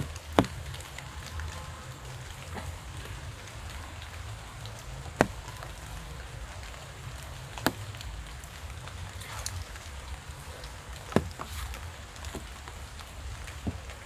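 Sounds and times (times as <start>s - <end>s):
steady rainfall: 0.0s - 14.0s
sharp taps: 10.4s - 14.0s.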